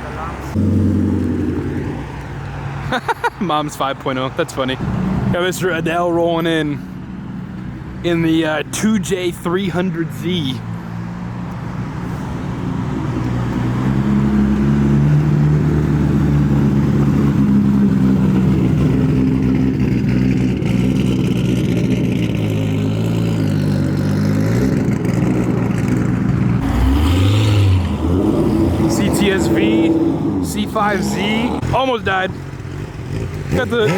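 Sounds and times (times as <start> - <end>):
loud car engine droning: 0.0 - 3.3, 3.9 - 33.9
engine rev: 0.4 - 2.3, 13.1 - 33.9.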